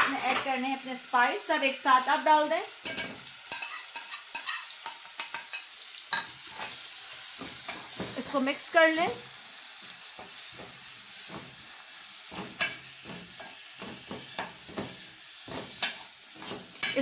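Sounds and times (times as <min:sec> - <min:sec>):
vegetables sizzling in hot oil: 0:00.0 - 0:17.0
spoon scraping a metal pot: 0:02.9 - 0:05.6, 0:06.2 - 0:06.8, 0:12.3 - 0:17.0.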